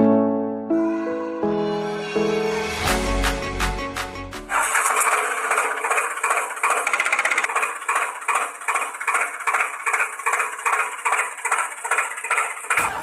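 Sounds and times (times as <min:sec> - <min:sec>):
toy engine pulsing hum: 0:04.5 - 0:13.0.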